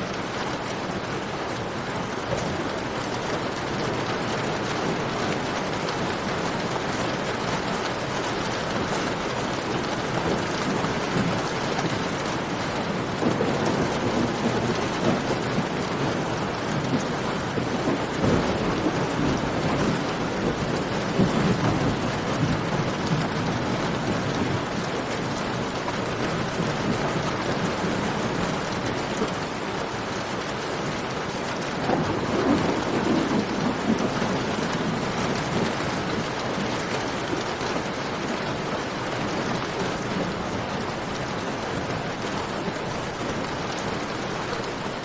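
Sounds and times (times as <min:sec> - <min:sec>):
steady rain falling: 0:00.0 - 0:45.0.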